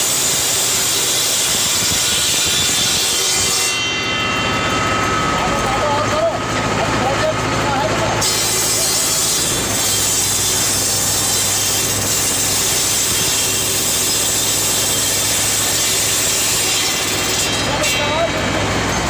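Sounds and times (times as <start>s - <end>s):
tractor engine hum: 3.9s - 16.3s, 17.7s - 19.0s
saw blade hissing through wood: 8.2s - 17.6s.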